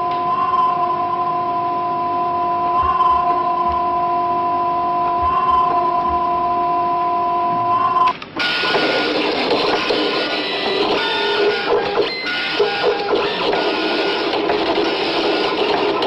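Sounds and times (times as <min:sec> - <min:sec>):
steady electronic tone: 0:00.0 - 0:16.0
dot-matrix printer printing: 0:07.5 - 0:16.0.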